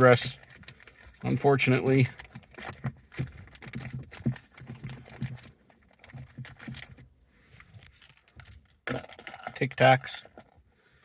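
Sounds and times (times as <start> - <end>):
small items clicking on plastic: 7.8 - 10.6.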